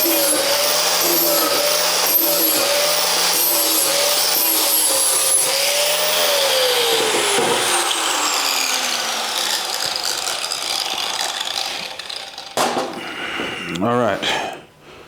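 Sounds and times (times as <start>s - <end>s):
gritty rasp: 0.0s - 6.4s
angle grinder sanding steel: 0.0s - 12.7s.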